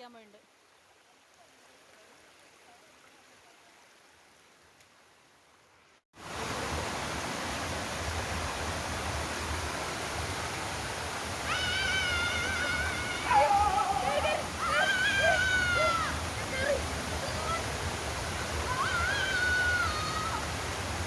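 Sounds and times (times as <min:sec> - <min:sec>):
waterfall rushing: 0:06.2 - 0:21.0.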